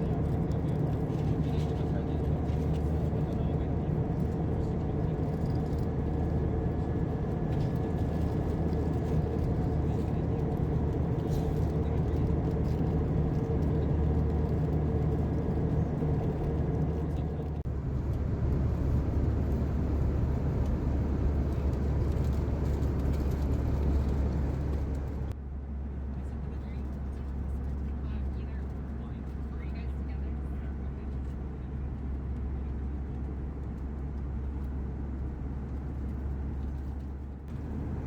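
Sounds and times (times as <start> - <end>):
airplane cabin drone: 0.0 - 25.4, 26.1 - 38.0
low rumble: 0.0 - 25.4, 34.4 - 38.0.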